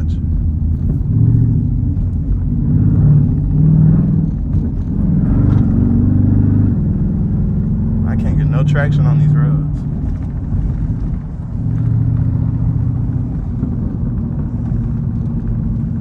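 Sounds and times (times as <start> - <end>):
car engine revving while driving: 0.0 - 16.0.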